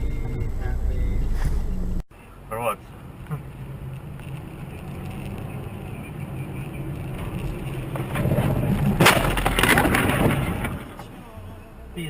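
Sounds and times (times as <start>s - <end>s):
car engine and road noise: 0.0s - 12.0s
vehicle collision bang and clatter: 6.8s - 11.4s.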